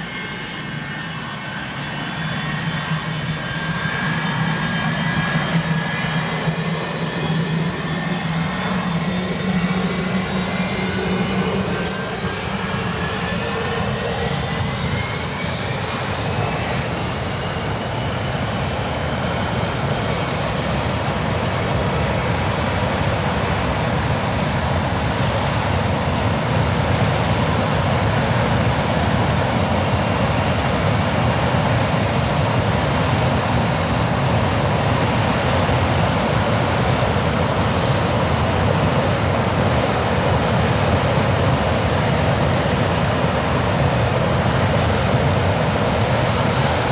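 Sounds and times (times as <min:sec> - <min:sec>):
thin rising whine: 0:00.0 - 0:19.2
loud jet engine rush: 0:00.0 - 0:46.9.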